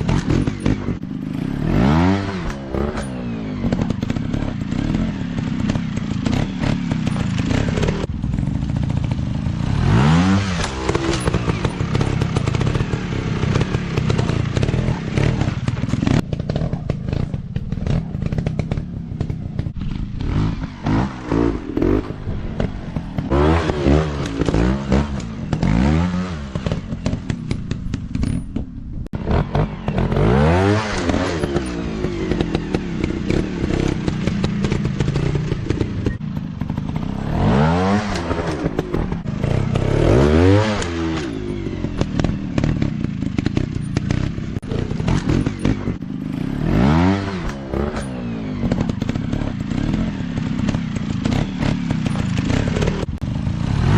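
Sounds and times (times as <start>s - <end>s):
dirt bike engines revving: 0.0s - 53.9s.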